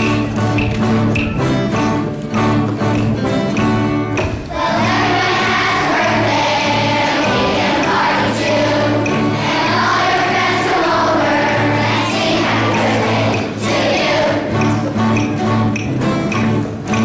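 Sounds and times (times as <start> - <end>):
acoustic guitar strumming: 0.0 - 17.0
children's choir singing: 4.1 - 17.0.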